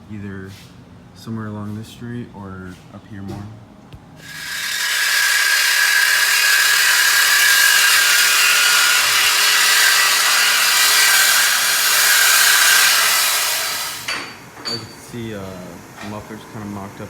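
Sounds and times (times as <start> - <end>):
power tool cutting metal pipe: 4.2 - 14.3.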